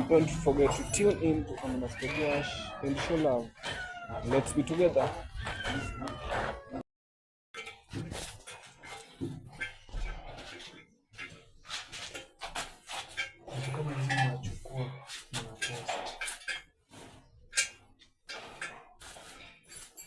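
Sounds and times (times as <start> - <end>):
low voices: 0.0 - 3.5.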